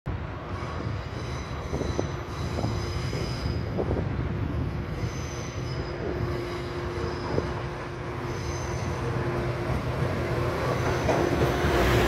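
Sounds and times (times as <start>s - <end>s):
train rumbling: 0.1s - 12.0s
wheel squeal on rails: 0.6s - 3.9s, 4.7s - 9.5s, 10.6s - 12.0s.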